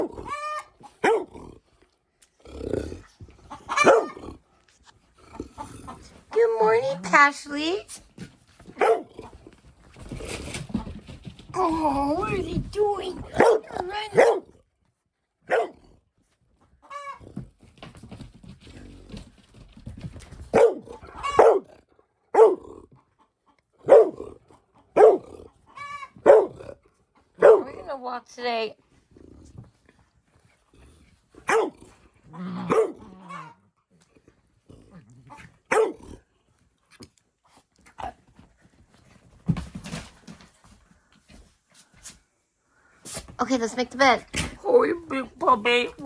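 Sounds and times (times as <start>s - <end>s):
puppy barking: 0.0s - 1.3s, 3.7s - 4.2s, 8.8s - 9.1s, 13.3s - 14.5s, 15.5s - 15.8s, 20.5s - 21.7s, 22.3s - 22.7s, 23.8s - 24.3s, 24.9s - 26.7s, 27.4s - 27.8s, 31.4s - 31.8s, 32.6s - 33.5s, 35.7s - 36.1s
puppy growling: 0.0s - 7.2s, 28.9s - 30.0s, 30.6s - 36.4s
dogs growling and scuffling: 0.0s - 46.0s
dog yelping: 3.7s - 4.2s, 8.8s - 9.1s, 13.3s - 14.4s, 15.5s - 15.8s, 20.5s - 21.6s, 22.4s - 22.6s, 25.0s - 26.6s, 27.4s - 27.7s, 35.7s - 36.0s.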